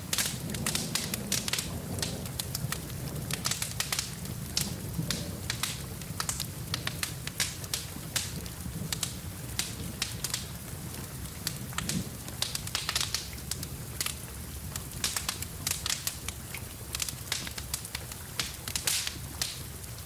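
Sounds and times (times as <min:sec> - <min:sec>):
hiss and rumble of flames: 0:00.0 - 0:20.0
wood fire crackling and popping: 0:00.0 - 0:20.0.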